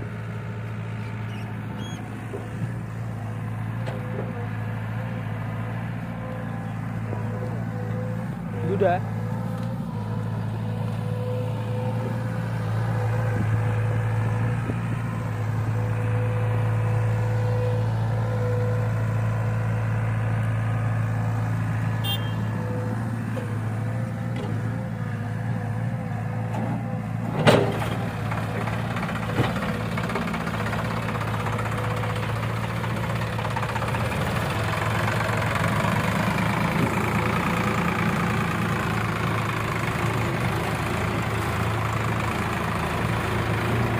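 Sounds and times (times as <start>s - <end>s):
diesel engine humming: 0.0s - 43.9s.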